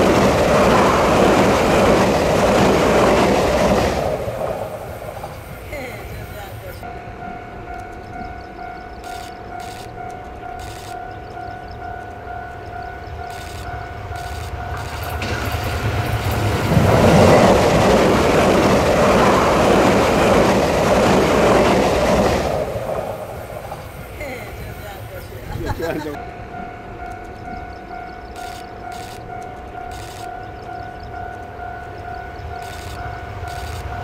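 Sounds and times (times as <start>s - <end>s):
train passing at speed: 0.0s - 34.0s
level-crossing bell ringing: 6.2s - 15.3s.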